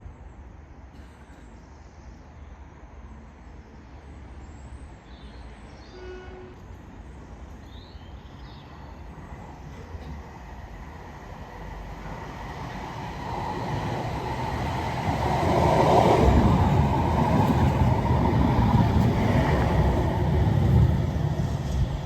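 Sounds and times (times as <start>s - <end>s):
tram rumble: 5.6s - 22.0s.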